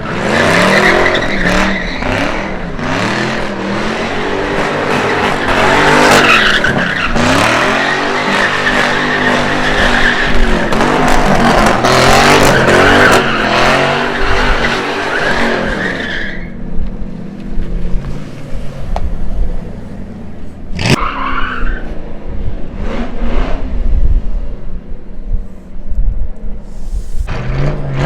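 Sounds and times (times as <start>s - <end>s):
car engine revving: 0.0s - 16.6s, 27.3s - 28.0s.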